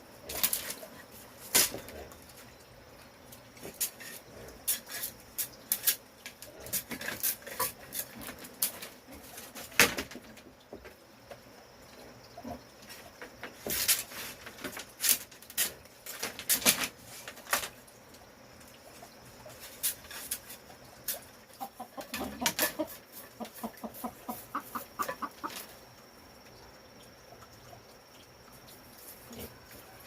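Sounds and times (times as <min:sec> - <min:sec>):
chickens squawking: 0:21.6 - 0:25.7
chickens clucking: 0:21.6 - 0:25.8.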